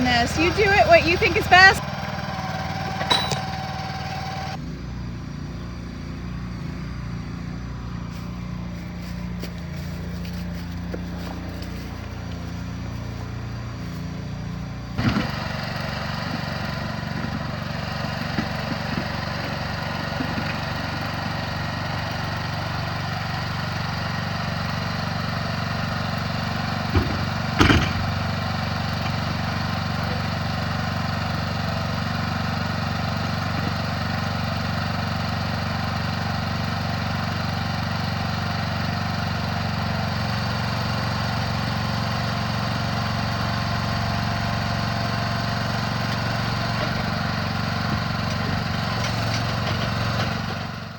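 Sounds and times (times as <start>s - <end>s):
small engine running: 0.0s - 50.9s
sharp clunks: 2.9s - 3.6s, 26.9s - 28.2s.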